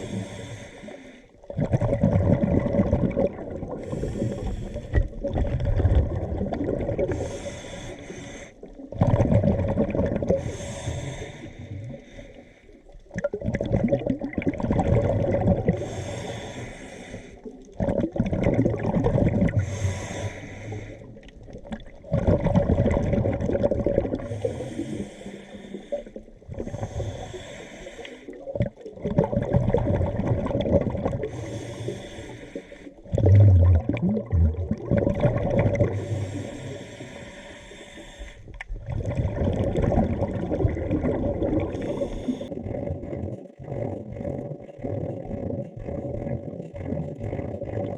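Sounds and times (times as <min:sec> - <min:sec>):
diver breathing through regulator: 0:00.0 - 0:01.4, 0:03.7 - 0:05.2, 0:07.0 - 0:08.7, 0:10.3 - 0:12.9, 0:15.6 - 0:17.6, 0:19.2 - 0:21.3, 0:24.1 - 0:28.6, 0:31.1 - 0:33.4, 0:35.6 - 0:38.6, 0:41.6 - 0:42.8
rush of exhaled bubbles: 0:00.0 - 0:47.9.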